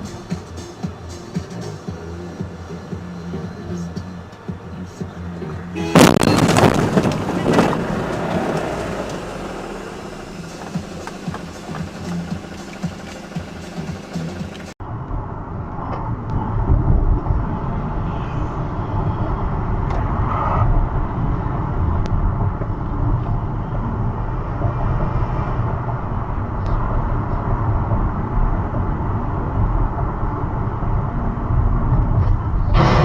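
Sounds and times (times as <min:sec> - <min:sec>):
car road and engine rumble: 0:00.0 - 0:33.0.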